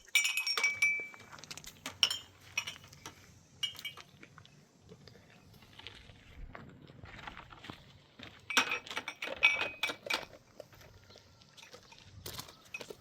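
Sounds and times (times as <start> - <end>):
hard objects clinking and knocking: 0.0 - 4.1, 8.5 - 11.0.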